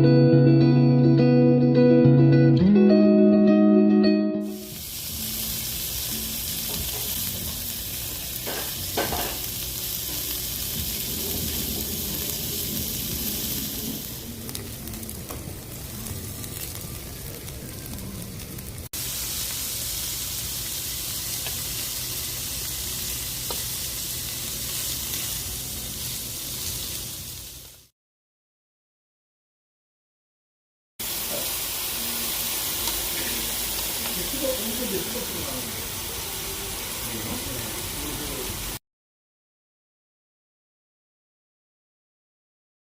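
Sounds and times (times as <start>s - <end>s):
grilled meat sizzling: 4.4s - 27.9s, 31.0s - 38.8s.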